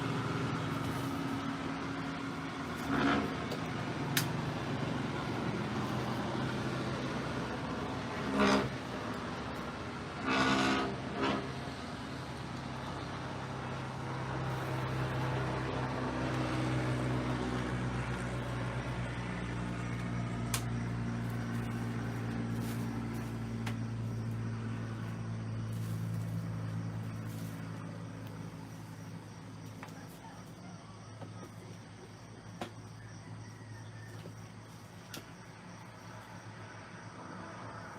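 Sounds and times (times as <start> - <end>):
motor engine humming: 0.0 - 30.2.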